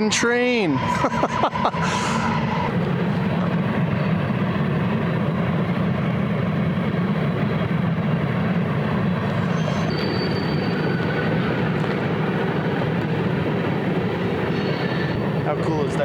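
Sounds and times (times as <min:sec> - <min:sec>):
train rumbling past: 0:00.0 - 0:16.0
faint thin high whine: 0:09.2 - 0:12.1.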